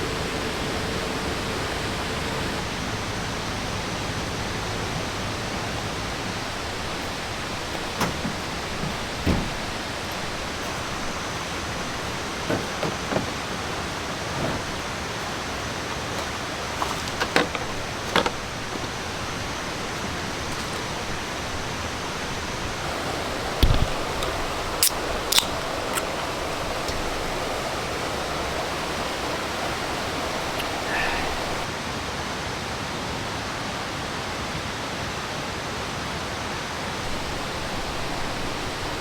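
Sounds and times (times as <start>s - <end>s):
waterfall and stream rushing: 0.0s - 39.0s
short knocks and clicks: 6.9s - 19.3s
low thud: 7.0s - 14.9s.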